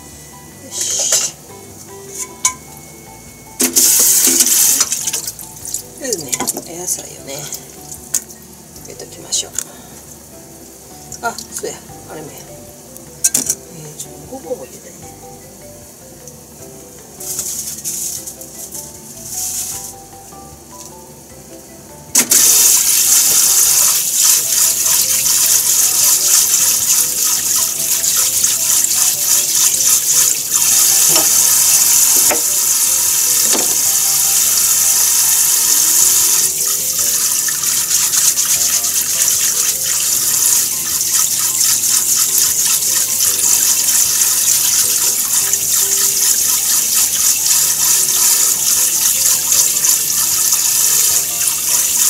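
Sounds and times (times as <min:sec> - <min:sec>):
faucet running into sink: 0:03.6 - 0:05.8, 0:22.2 - 0:52.0.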